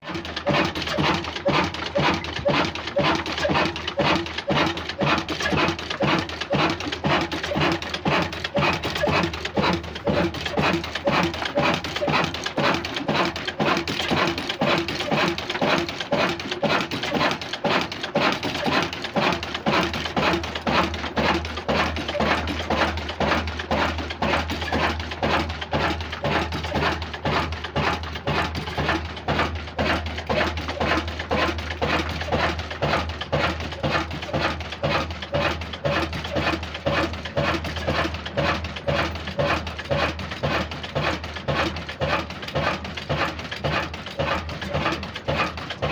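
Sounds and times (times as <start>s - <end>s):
diesel engine chugging: 0.1s - 45.9s.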